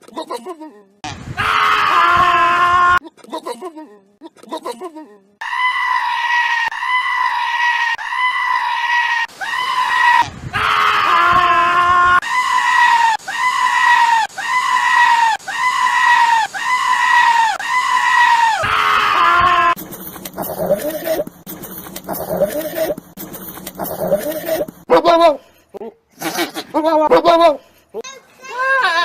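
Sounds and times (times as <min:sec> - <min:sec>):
goat bleating: 0:22.1 - 0:23.0, 0:26.2 - 0:27.6, 0:28.5 - 0:29.0.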